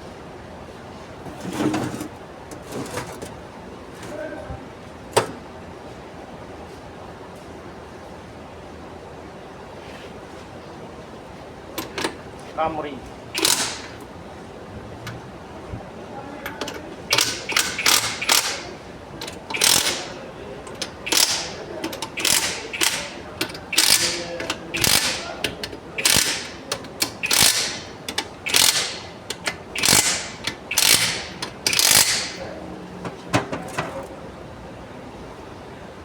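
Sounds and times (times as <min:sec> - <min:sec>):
light ratchet clicks: 0:13.4 - 0:14.0, 0:16.5 - 0:18.6, 0:19.2 - 0:20.1, 0:20.7 - 0:32.4
ratchet wrench ratcheting: 0:13.4 - 0:14.0, 0:16.6 - 0:25.3, 0:26.0 - 0:32.4.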